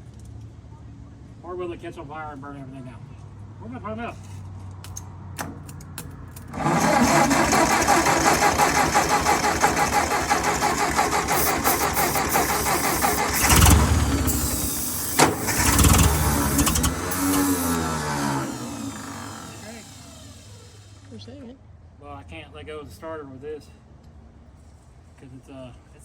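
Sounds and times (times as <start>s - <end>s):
tractor engine cranking: 4.8s - 21.2s
engine firing briefly: 6.5s - 21.2s.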